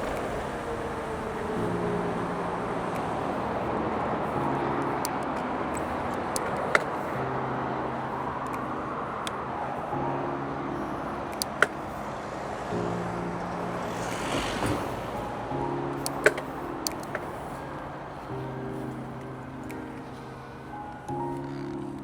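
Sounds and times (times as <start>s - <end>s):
rushing wind: 0.0s - 21.3s
bike tyre noise: 0.0s - 22.0s
sharp clicks: 15.9s - 17.8s.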